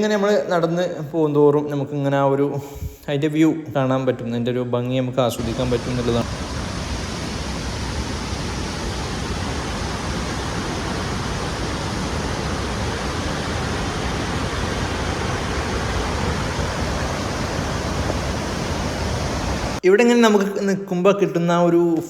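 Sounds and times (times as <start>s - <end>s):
waterfall rushing: 5.4s - 19.8s.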